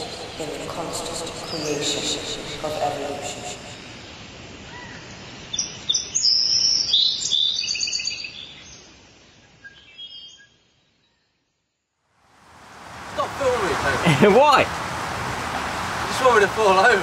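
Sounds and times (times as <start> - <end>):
birds chirping and trilling: 0.0 - 8.9
faint outdoor hiss: 0.0 - 17.0.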